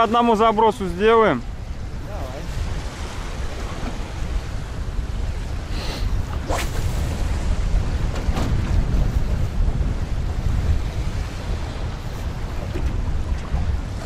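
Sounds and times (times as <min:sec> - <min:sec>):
waves slapping boat: 0:00.0 - 0:14.0
wind buffeting microphone: 0:00.0 - 0:14.0
high swishes: 0:06.4 - 0:07.2.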